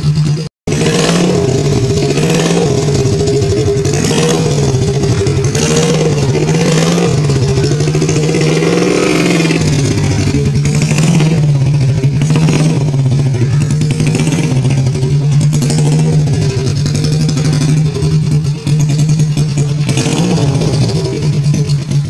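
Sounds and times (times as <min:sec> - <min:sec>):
small motorbike engine running: 0:00.0 - 0:22.0.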